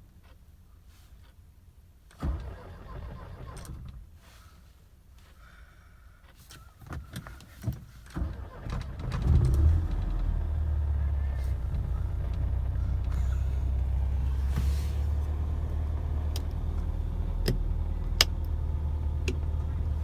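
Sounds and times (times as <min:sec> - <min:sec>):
engine cranking and starting: 0:02.1 - 0:04.0, 0:08.1 - 0:20.0
engine running: 0:08.4 - 0:20.0.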